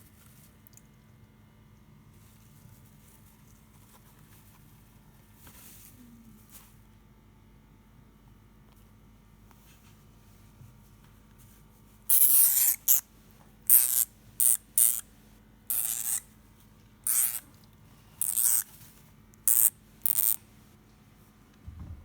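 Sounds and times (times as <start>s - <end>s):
hamster hissing: 12.1s - 13.0s, 15.7s - 16.2s, 17.1s - 17.4s, 18.2s - 18.7s, 19.5s - 20.4s.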